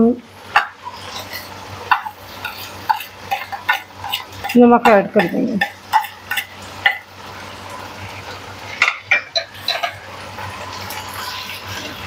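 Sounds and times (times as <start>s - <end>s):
chicken sizzling in hot oil: 0.0s - 12.0s
spatula scraping pan: 0.5s - 12.0s
metal spoon clinking on plate: 8.8s - 10.0s.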